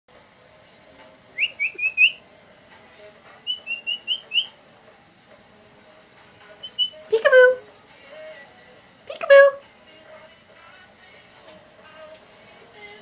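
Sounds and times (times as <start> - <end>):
whistling short high notes: 3.5 - 4.5, 6.6 - 7.0.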